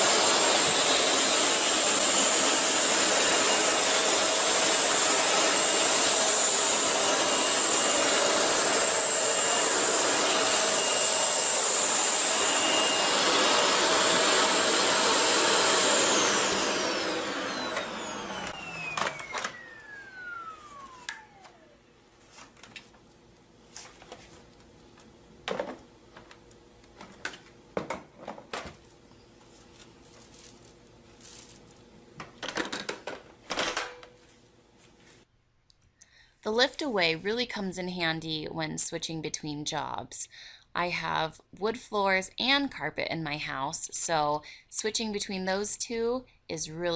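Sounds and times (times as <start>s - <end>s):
vacuum cleaner motor whining: 0.0s - 33.8s.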